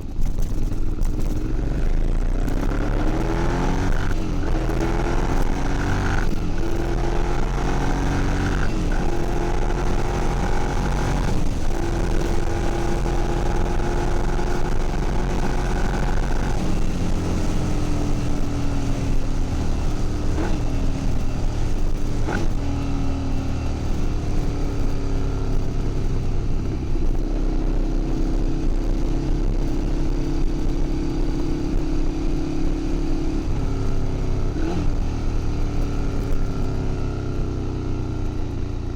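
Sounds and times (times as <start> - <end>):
motorcycle engine idling: 0.0 - 2.3
motorcycle throttle blips: 0.0 - 38.9.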